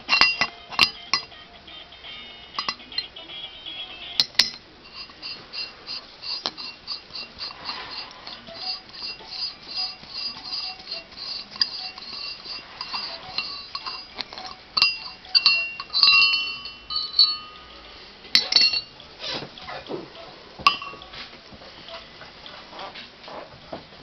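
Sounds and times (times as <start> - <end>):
steel tools clinking: 0.0 - 1.3, 2.6 - 3.1, 4.2 - 19.9, 20.6 - 21.2.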